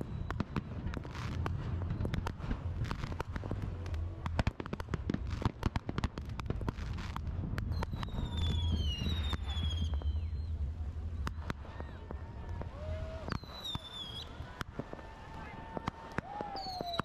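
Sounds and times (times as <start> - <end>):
fireworks whistles gliding down: 0.0 - 4.0, 6.8 - 17.0
low rumble: 0.0 - 16.4
fireworks bangs and crackling: 0.0 - 17.0.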